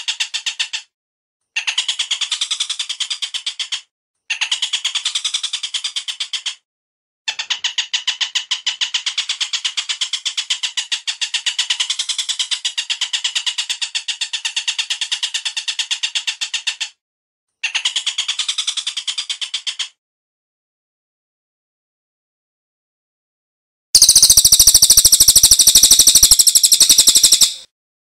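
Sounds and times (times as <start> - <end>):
bird chattering call: 24.0 - 27.7.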